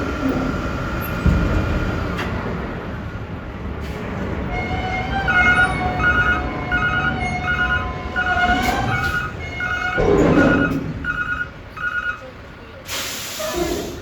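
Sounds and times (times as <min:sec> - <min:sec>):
truck engine rumble: 0:00.0 - 0:14.0
truck reversing alarm beeping: 0:04.6 - 0:13.4.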